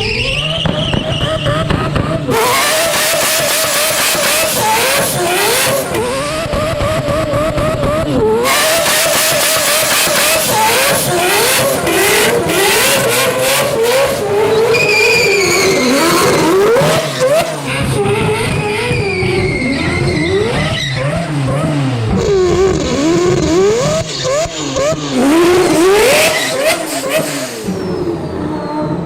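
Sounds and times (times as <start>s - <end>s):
car engine revving: 0.0s - 29.0s
tyres squealing: 10.2s - 21.2s.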